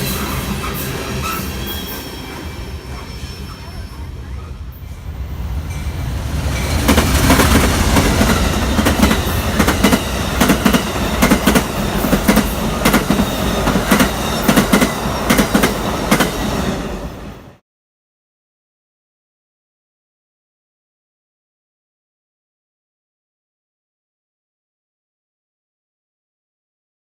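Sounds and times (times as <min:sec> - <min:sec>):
train rumbling past: 0:00.0 - 0:17.6
train wheels clacking over rail joints: 0:05.7 - 0:16.9.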